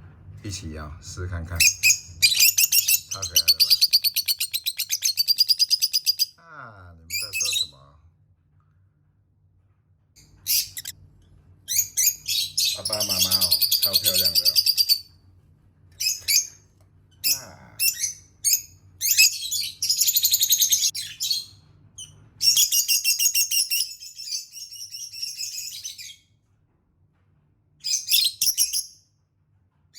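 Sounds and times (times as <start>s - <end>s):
parrots chirping: 1.5s - 6.4s, 7.1s - 7.8s, 10.2s - 11.0s, 11.7s - 15.1s, 16.0s - 26.2s.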